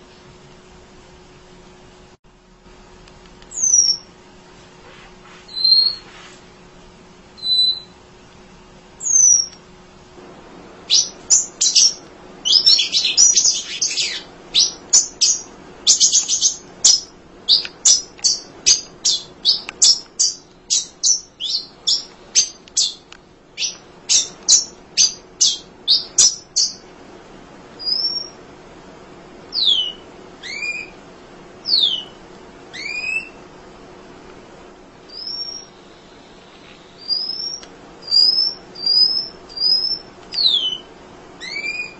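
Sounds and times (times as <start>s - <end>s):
bird whistled notes: 3.5s - 4.1s, 5.5s - 6.1s, 7.4s - 8.0s, 9.0s - 9.5s, 10.9s - 23.0s, 29.6s - 30.9s, 32.8s - 33.4s, 35.1s - 35.8s, 37.0s - 41.9s
bird chattering chip notes: 10.9s - 23.0s.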